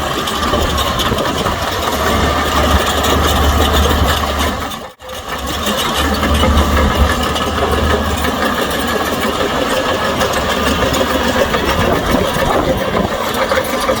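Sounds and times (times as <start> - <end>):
heavy diesel engine running: 0.0 - 14.0.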